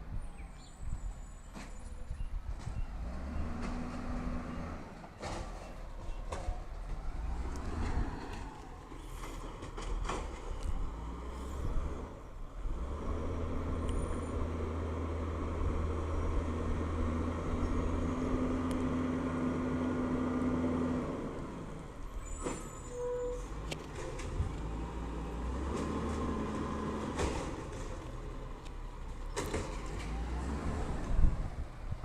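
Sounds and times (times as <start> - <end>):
garbage truck engine revving: 6.9 - 22.6, 23.5 - 28.5, 29.4 - 31.4.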